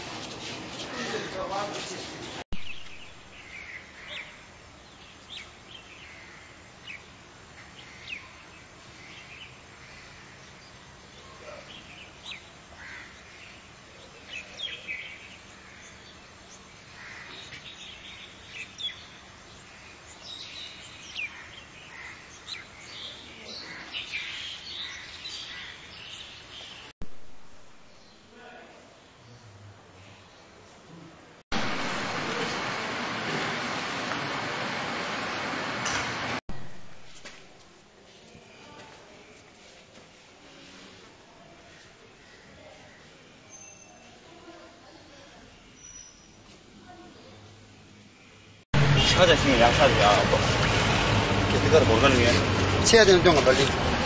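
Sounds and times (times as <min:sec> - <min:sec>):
birds chirping: 0:00.8 - 0:26.9.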